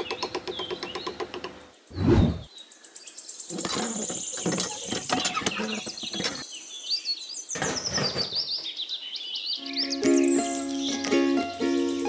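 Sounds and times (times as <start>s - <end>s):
songbirds chirping and trilling: 0.0s - 12.0s.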